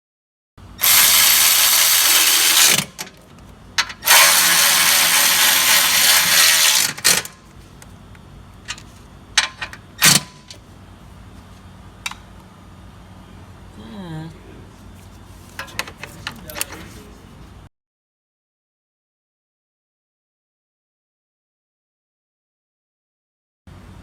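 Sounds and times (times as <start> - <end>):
electric ratchet driving bolts: 0.8 - 7.4, 9.4 - 10.6.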